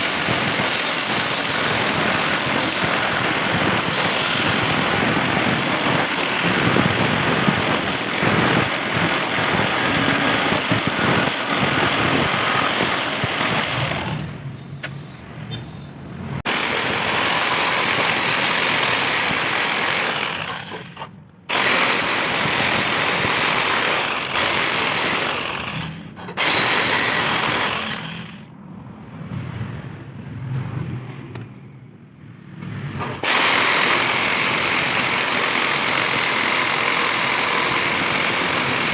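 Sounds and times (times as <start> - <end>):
electric jigsaw cutting steel: 0.0 - 14.3, 16.4 - 28.5, 33.0 - 38.9.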